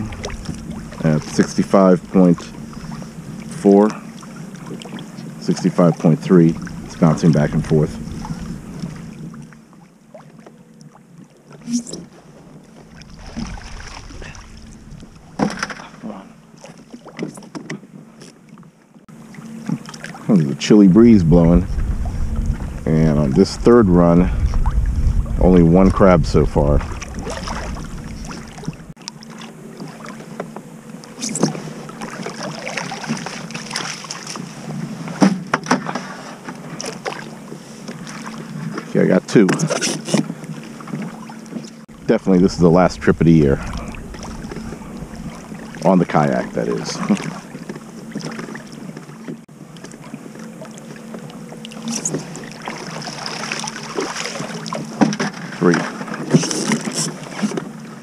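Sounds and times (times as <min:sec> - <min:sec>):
wind buffeting microphone: 0:00.0 - 0:01.4, 0:06.4 - 0:09.3, 0:12.9 - 0:15.4, 0:20.9 - 0:29.0, 0:41.9 - 0:47.2
faint steady hum: 0:00.0 - 0:16.7, 0:19.1 - 0:35.0, 0:40.4 - 0:54.9
water splashing around a kayak: 0:00.0 - 0:58.0
water splashing and dripping: 0:12.8 - 0:15.8, 0:26.6 - 0:29.0, 0:42.5 - 0:47.6.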